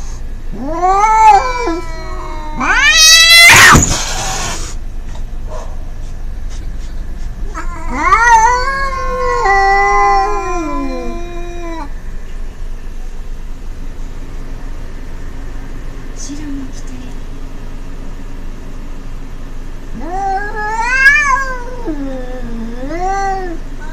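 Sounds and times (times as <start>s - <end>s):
cats yowling: 0.5s - 4.8s, 7.4s - 11.9s, 19.9s - 23.7s.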